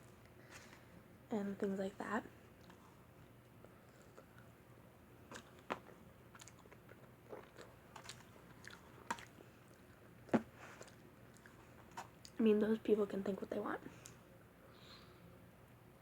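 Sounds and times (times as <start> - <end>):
person chewing pizza: 2.6 - 4.6, 5.2 - 12.4.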